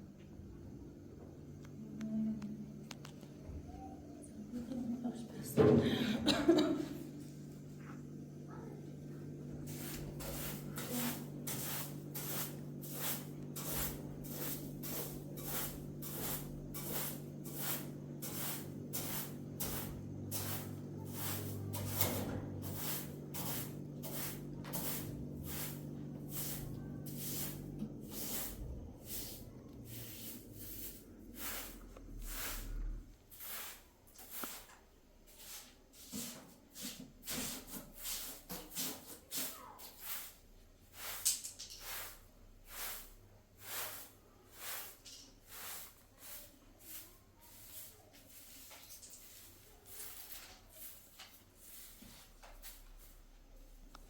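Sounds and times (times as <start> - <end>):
steady low hum: 0.0 - 34.1.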